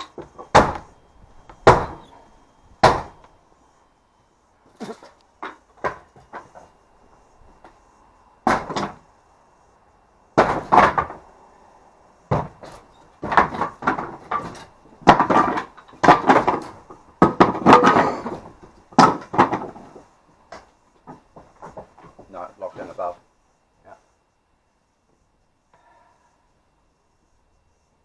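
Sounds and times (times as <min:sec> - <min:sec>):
heavy knocks on wooden boards: 0:00.1 - 0:00.9, 0:01.6 - 0:02.1, 0:02.8 - 0:03.2, 0:04.8 - 0:06.7, 0:08.4 - 0:09.0, 0:10.4 - 0:11.2, 0:12.3 - 0:22.3.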